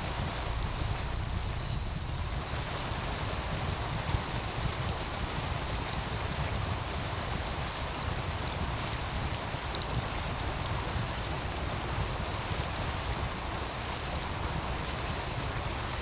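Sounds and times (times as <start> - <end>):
low rumble: 0.0 - 3.7
wood fire crackling: 0.0 - 16.0.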